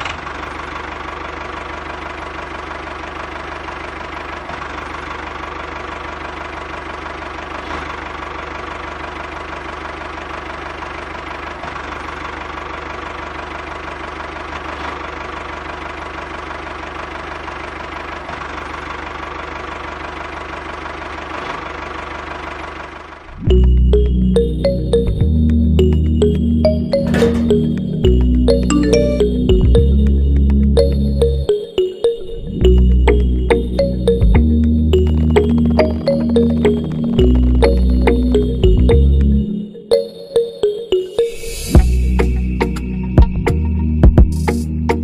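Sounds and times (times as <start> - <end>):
model tractor engine running: 0.0 - 23.4
music: 23.4 - 45.0.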